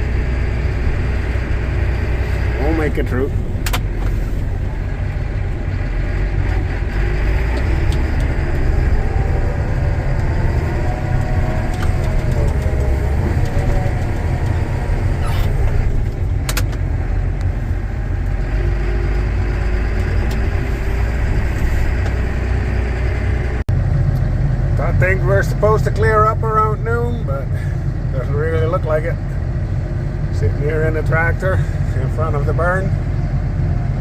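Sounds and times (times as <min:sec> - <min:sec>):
tractor engine rumbling: 0:00.0 - 0:34.0
sharp clicks: 0:11.2 - 0:14.6.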